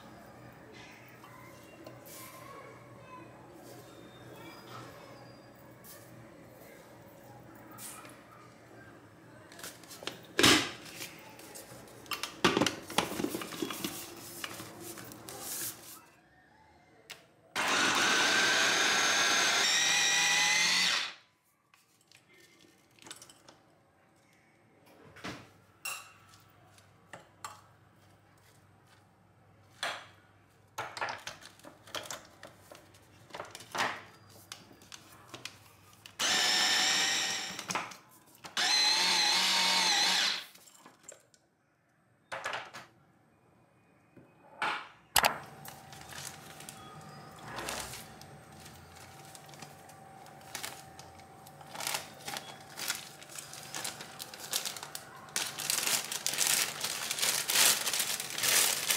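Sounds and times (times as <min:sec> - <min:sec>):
electric chopper motor running: 0:17.6 - 0:21.1, 0:36.2 - 0:37.7, 0:38.6 - 0:40.4.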